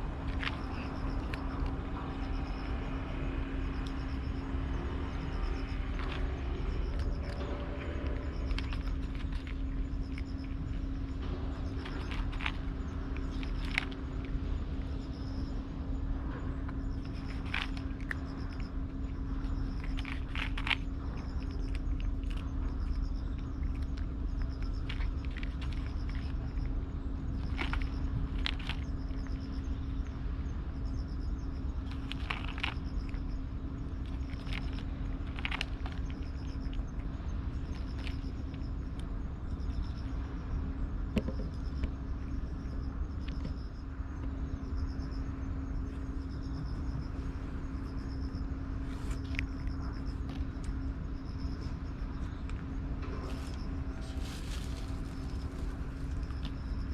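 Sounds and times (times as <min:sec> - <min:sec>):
constant hum: 0:00.0 - 0:56.9
insects chirping: 0:00.0 - 0:56.9
low rumble: 0:00.0 - 0:56.9.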